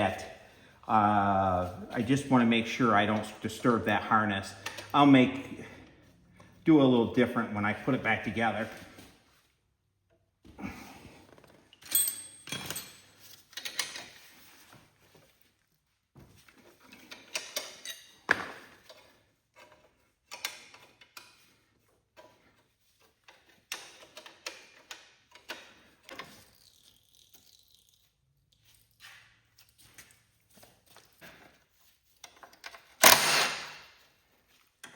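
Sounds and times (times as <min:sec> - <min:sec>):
wrench and metal parts clinking: 0:11.8 - 0:14.2, 0:16.9 - 0:18.3.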